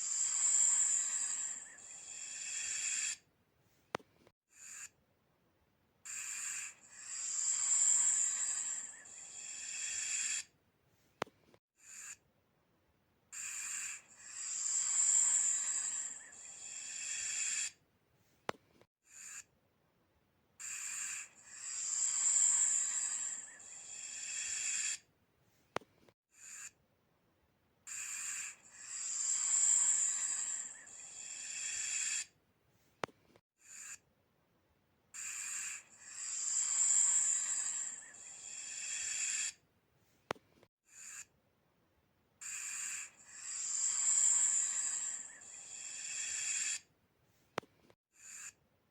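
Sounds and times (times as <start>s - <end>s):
snake hissing: 0.0s - 3.2s, 6.1s - 10.5s, 13.4s - 17.8s, 20.6s - 25.0s, 27.9s - 32.3s, 35.2s - 39.6s, 42.5s - 46.9s.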